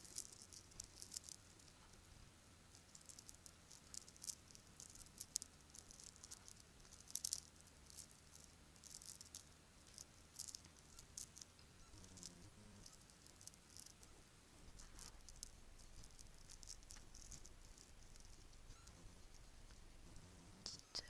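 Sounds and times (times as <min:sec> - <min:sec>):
bracelets clinking and rattling: 0:02.8 - 0:11.5, 0:14.7 - 0:18.7.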